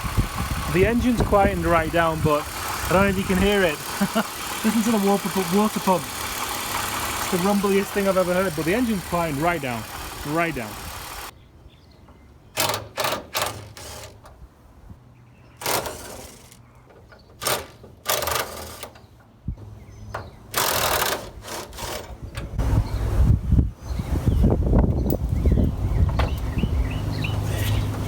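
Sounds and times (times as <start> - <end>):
car engine idling: 0.0 - 11.3
rumbling water pump: 0.0 - 11.3, 25.6 - 28.0.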